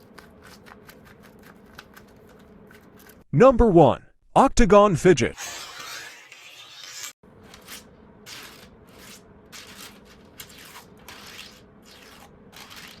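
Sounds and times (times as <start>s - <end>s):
plastic fidget toy scraping: 5.4s - 13.0s.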